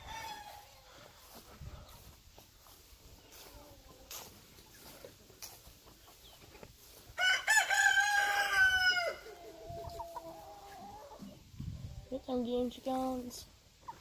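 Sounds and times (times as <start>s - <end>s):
rooster crowing: 0.0s - 0.7s, 7.2s - 9.4s.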